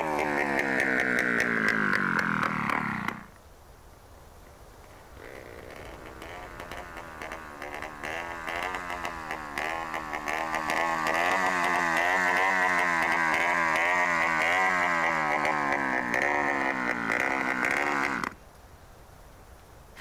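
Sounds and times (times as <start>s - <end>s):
dirt bike engine: 0.0s - 3.4s, 4.9s - 18.4s.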